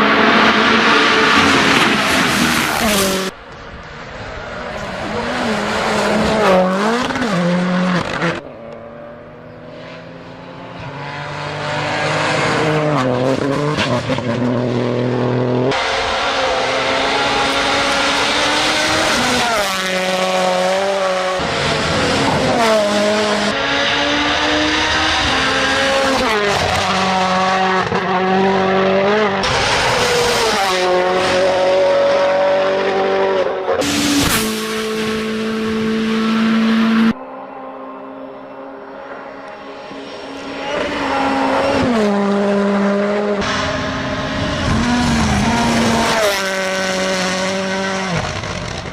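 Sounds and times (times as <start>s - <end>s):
car engines revving: 0.0s - 48.9s.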